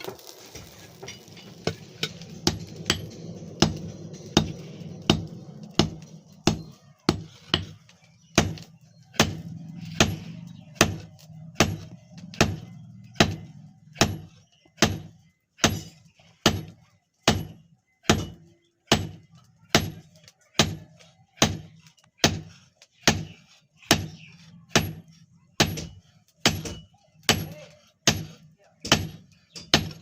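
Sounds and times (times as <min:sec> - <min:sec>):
low hum: 0:00.1 - 0:06.8
hammer striking iron on anvil: 0:01.1 - 0:07.8, 0:08.4 - 0:20.0, 0:23.9 - 0:30.0.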